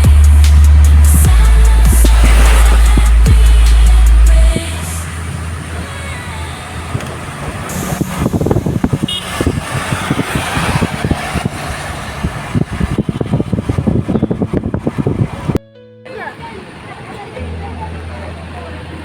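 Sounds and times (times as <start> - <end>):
low thumps: 0.0 - 4.8
vehicle road and engine noise: 0.0 - 19.0.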